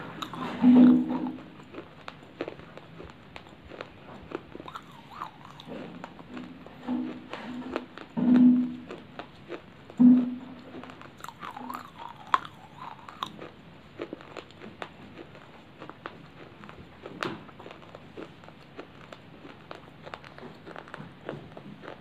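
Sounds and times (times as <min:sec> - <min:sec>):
crunchy chewing: 0:00.0 - 0:22.0
brief low tone: 0:10.0 - 0:10.6.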